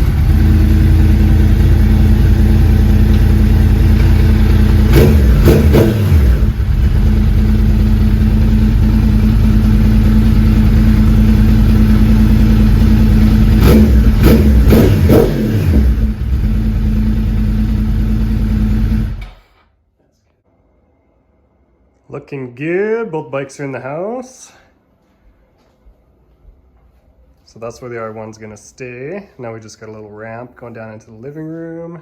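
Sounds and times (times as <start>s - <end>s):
motorcycle engine idling and revving: 0.0s - 19.4s.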